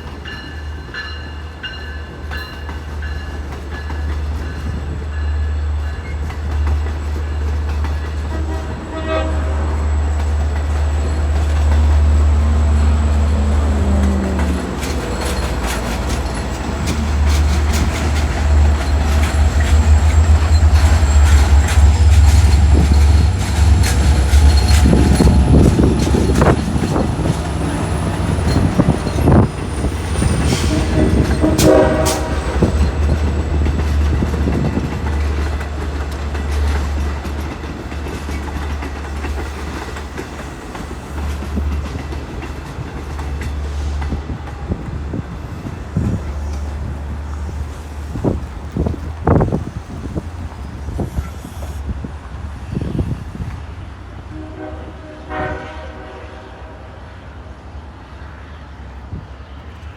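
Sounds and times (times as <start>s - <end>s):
train rumble: 0.0s - 59.9s
short train horn: 8.3s - 10.1s, 30.2s - 32.9s, 54.3s - 57.2s.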